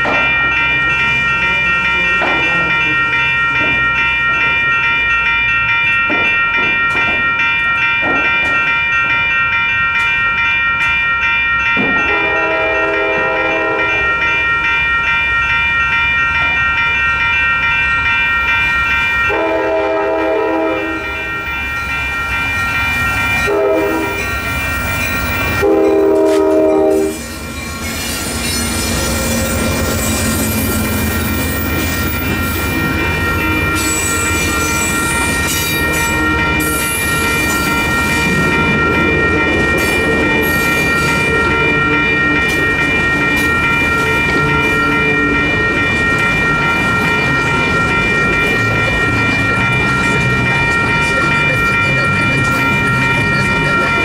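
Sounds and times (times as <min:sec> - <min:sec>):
railroad crossing bells ringing: 0:00.0 - 0:54.0
train wheels rumbling and clattering: 0:00.0 - 0:54.0
locomotive horn blasts: 0:12.1 - 0:14.0, 0:19.3 - 0:21.1, 0:23.5 - 0:24.2, 0:25.6 - 0:27.2.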